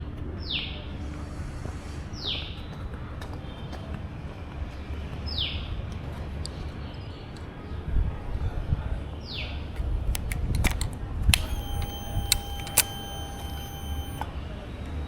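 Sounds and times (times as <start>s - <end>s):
sharp clicks: 10.1s - 14.3s.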